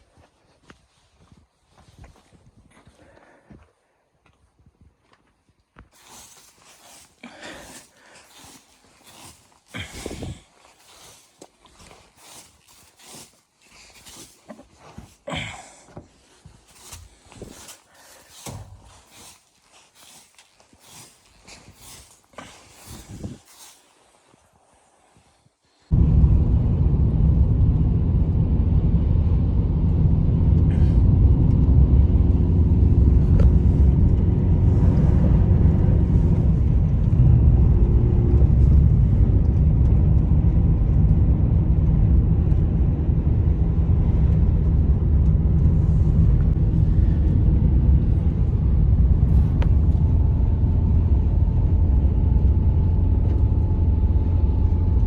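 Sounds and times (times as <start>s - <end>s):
wind buffeting microphone: 22.9s - 23.5s.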